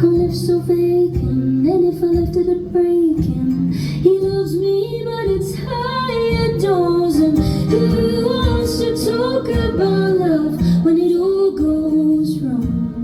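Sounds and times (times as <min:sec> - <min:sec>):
woman singing: 0:00.0 - 0:13.0.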